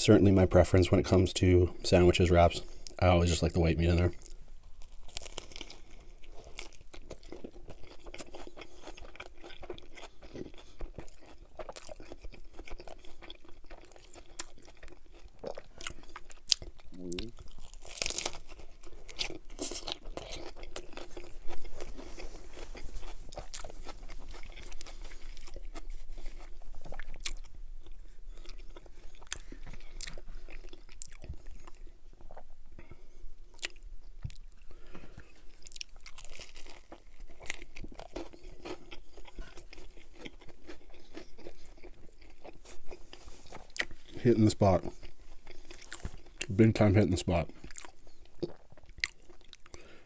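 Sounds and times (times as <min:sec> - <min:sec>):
crunchy chewing: 0:02.6 - 0:50.0
biting into a wrap: 0:04.2 - 0:31.9, 0:34.4 - 0:46.6.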